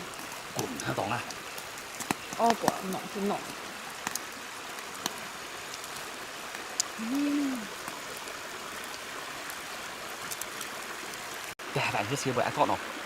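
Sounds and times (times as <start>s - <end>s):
stream water running: 0.0s - 13.0s
hum-like voice: 7.0s - 7.7s.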